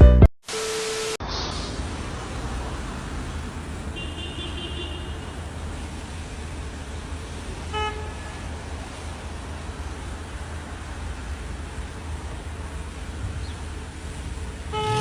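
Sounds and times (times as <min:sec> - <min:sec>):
low vehicle engine rumble: 0:01.2 - 0:15.0
car horn toot: 0:04.0 - 0:05.3, 0:07.7 - 0:08.4, 0:14.7 - 0:15.0.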